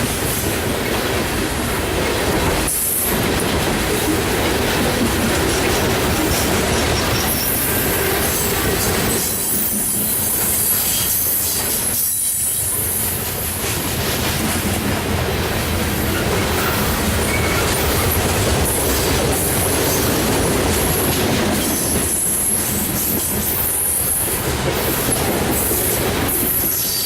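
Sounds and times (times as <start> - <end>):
train wheels rumbling on rails: 0.0 - 27.0
high-pitched wheel squeal: 16.0 - 17.9.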